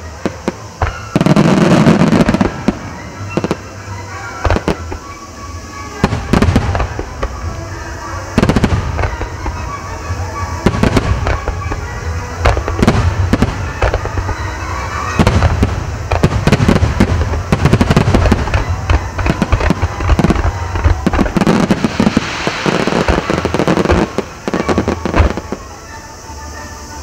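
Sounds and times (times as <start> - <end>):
firework crackle and rumble: 0.0 - 27.0
firework shells bursting: 4.4 - 25.8.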